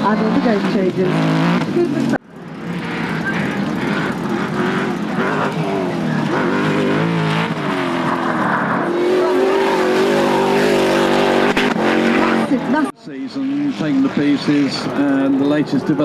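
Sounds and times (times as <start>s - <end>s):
racing car engine revving: 0.0s - 16.0s.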